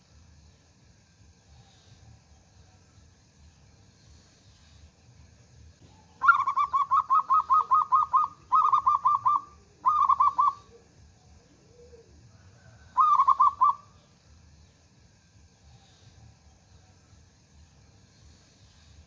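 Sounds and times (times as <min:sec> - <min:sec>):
dove cooing: 0:05.8 - 0:14.0.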